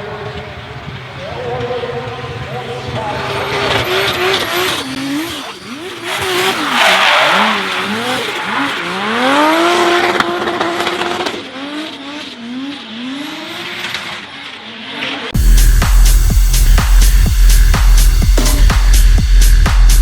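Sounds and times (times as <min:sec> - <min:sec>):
car engine revving: 0:00.0 - 0:20.0
tyre squeal: 0:01.2 - 0:11.2.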